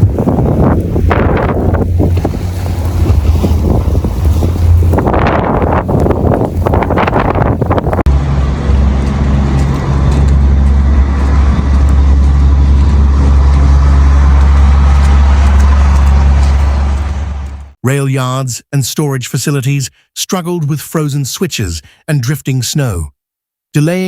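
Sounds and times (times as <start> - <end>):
rough gusty noise: 0.0 - 17.7
vehicle engine rumbling: 0.0 - 17.8.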